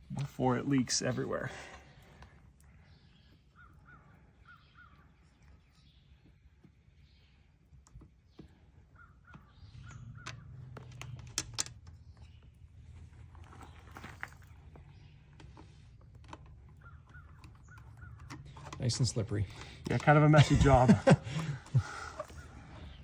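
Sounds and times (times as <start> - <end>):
bird calling faintly: 0.0 - 23.0
sharp clicks: 9.2 - 12.6, 15.2 - 23.0.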